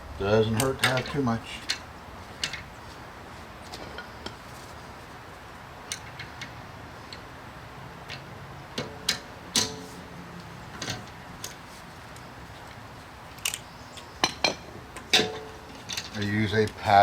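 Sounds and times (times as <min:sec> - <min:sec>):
metal tools clinking: 0:14.4 - 0:16.4.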